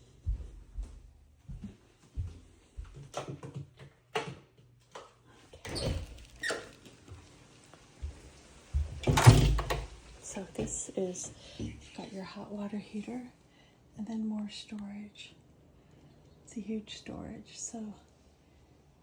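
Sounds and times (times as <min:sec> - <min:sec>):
footsteps: 0:00.0 - 0:03.2, 0:06.1 - 0:09.2
handling noise with squeaks: 0:05.6 - 0:07.2.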